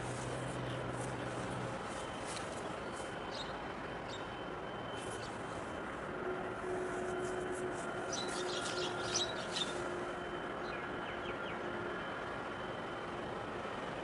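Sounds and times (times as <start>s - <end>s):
steady hum: 0.0s - 14.0s
birds chirping: 0.3s - 5.5s, 7.1s - 11.8s.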